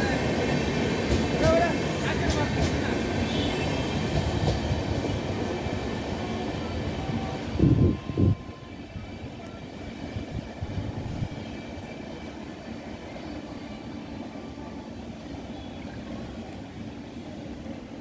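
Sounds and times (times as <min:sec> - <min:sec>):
train low rumble: 0:00.0 - 0:18.0
train knocks on track: 0:00.9 - 0:05.4.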